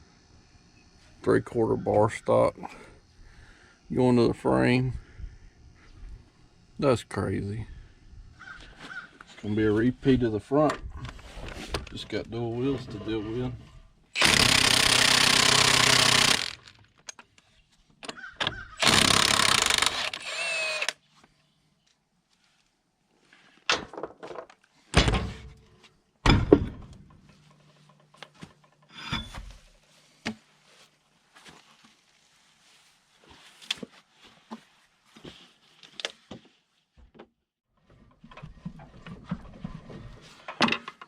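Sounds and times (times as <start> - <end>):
impact wrench running: 14.2 - 16.8, 18.8 - 21.0
heavy metal clunks: 26.2 - 27.3.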